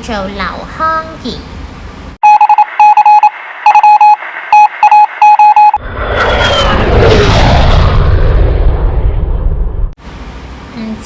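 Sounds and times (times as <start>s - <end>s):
quick electronic beeps: 2.2s - 5.8s
jet airliner roar: 5.6s - 10.0s.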